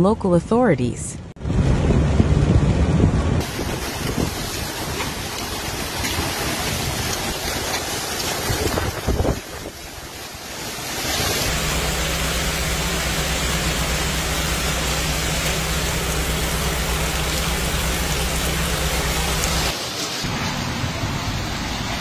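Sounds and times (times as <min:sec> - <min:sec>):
wind buffeting microphone: 0:01.4 - 0:10.1
heavy downpour roaring: 0:01.4 - 0:22.0.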